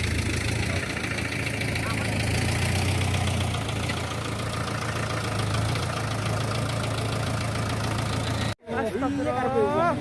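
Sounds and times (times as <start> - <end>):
engine running at low drone: 0.0 - 8.6.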